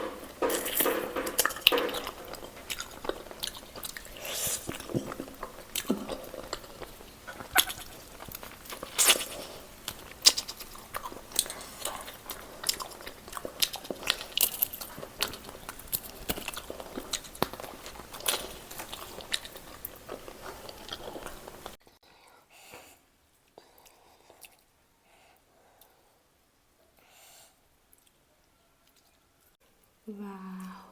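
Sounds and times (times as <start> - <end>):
chewing and crunching chicken: 0.0 - 21.8, 23.5 - 26.1.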